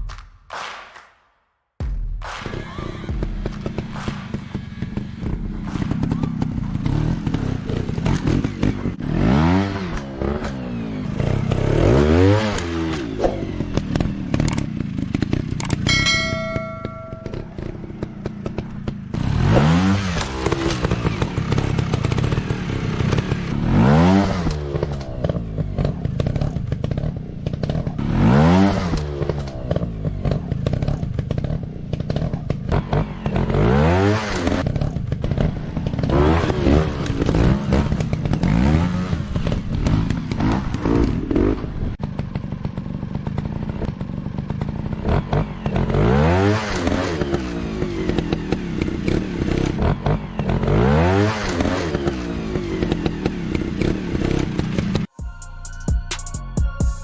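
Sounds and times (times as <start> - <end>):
dirt bike engine revving: 2.8 - 55.1.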